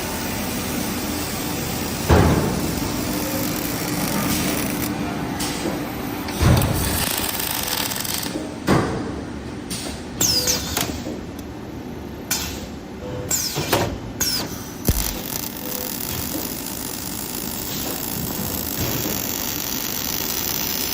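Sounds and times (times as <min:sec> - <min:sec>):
forming machine running: 0:00.0 - 0:05.7, 0:06.3 - 0:08.4, 0:14.9 - 0:20.9.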